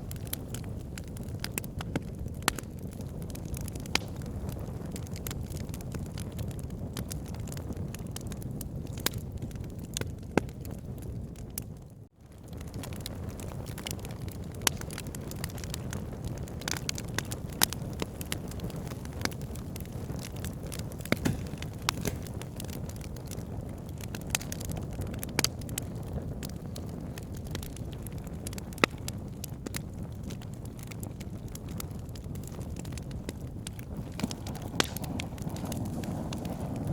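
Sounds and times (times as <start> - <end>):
wood fire crackling: 0.0 - 36.9
low rush of flame: 30.7 - 36.9.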